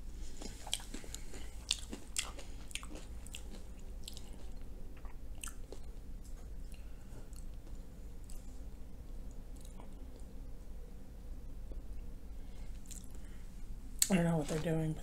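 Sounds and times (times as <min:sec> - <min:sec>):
close chewing with wet smacks: 0:00.4 - 0:07.7.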